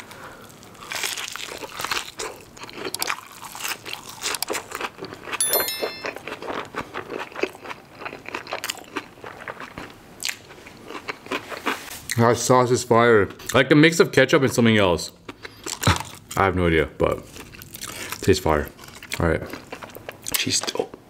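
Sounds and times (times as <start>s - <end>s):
crunching and chewing: 0.4s - 5.4s, 6.3s - 12.2s, 15.2s - 16.4s, 17.1s - 20.9s
electronic chime: 5.4s - 6.2s.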